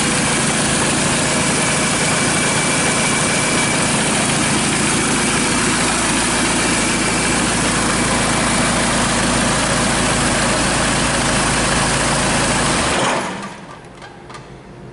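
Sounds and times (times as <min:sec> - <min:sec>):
diesel engine idling: 0:00.0 - 0:13.6.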